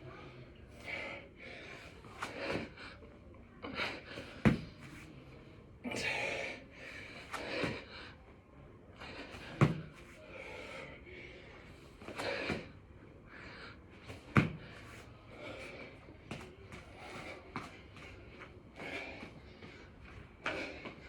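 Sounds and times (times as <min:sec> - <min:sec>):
thuds landing on floor: 0:04.5 - 0:04.8, 0:09.5 - 0:10.0, 0:14.1 - 0:14.7.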